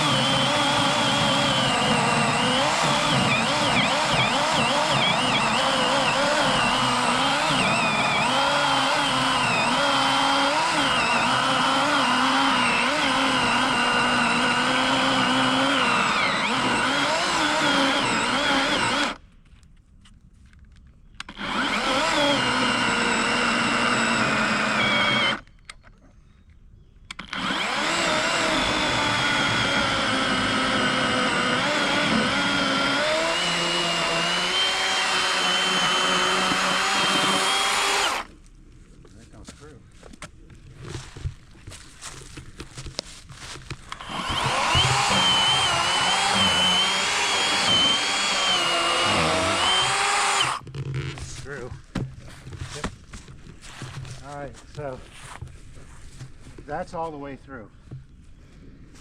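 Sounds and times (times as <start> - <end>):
electric chainsaw cutting log: 0.0 - 19.2, 21.3 - 25.5, 27.1 - 38.4, 43.9 - 50.7.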